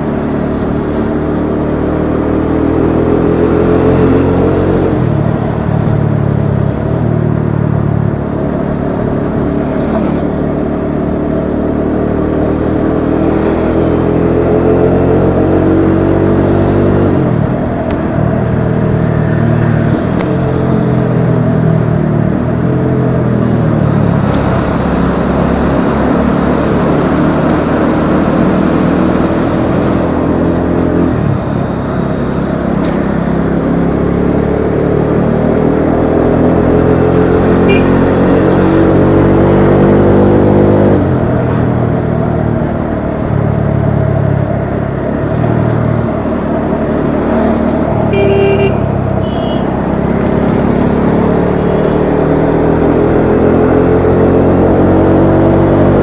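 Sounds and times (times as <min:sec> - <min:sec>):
motorcycle engine revving: 0:00.0 - 0:56.0
vehicle horn beeping: 0:37.6 - 0:38.2, 0:48.1 - 0:49.8.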